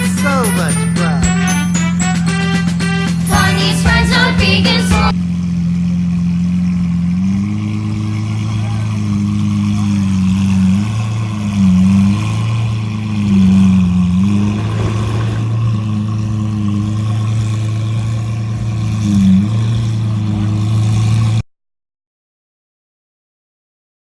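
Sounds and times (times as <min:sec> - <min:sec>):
car engine running: 0:00.0 - 0:21.4.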